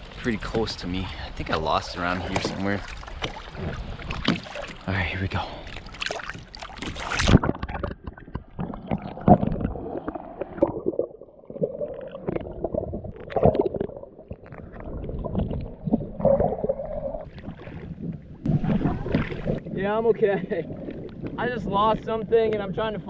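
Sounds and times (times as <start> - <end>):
underwater gurgling and bubbles: 0.0 - 23.0
dull underwater thumps: 2.0 - 4.9, 6.0 - 22.8
splash into water: 2.2 - 4.9, 5.7 - 11.0.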